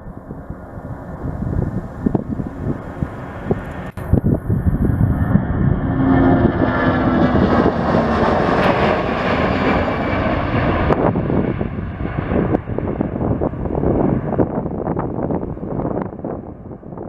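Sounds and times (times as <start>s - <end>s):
jet airliner engines passing: 0.0s - 17.0s
wind buffeting microphone: 0.0s - 17.0s.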